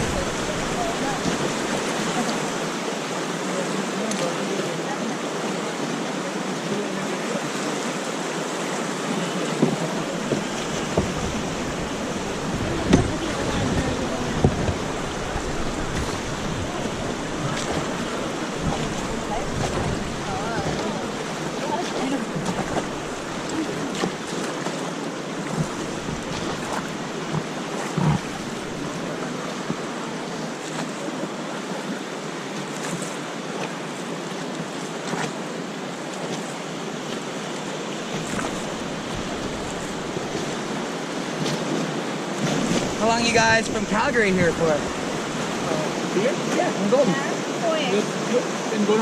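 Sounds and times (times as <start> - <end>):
wind noise on microphone: 0.0 - 1.8, 10.2 - 20.8
river water rushing: 0.0 - 49.0
short knocks or splashes: 9.5 - 24.8, 25.4 - 29.8, 38.1 - 40.7.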